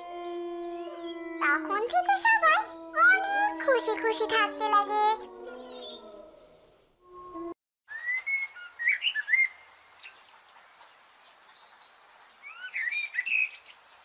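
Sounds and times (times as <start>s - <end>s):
birds chirping and whistling: 5.5s - 6.5s, 7.9s - 10.6s, 12.5s - 14.0s
steady outdoor hiss: 8.0s - 14.0s.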